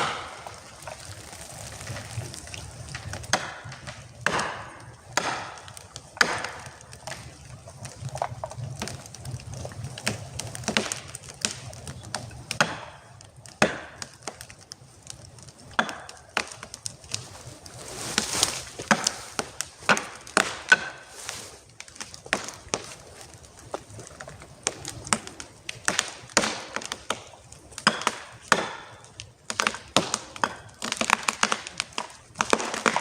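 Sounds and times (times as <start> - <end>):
chopping blows on wood: 4.2 - 6.7.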